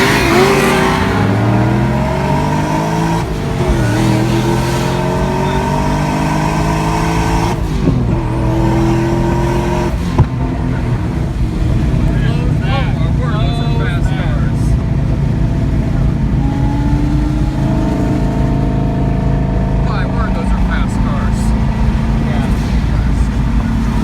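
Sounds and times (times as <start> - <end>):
car engine accelerating hard: 0.0 - 24.0
sharp pop: 10.1 - 10.4.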